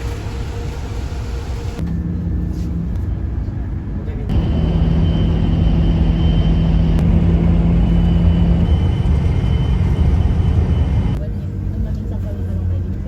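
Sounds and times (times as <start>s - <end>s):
engine hum: 0.0s - 13.0s
road vehicle rumble: 0.0s - 13.0s.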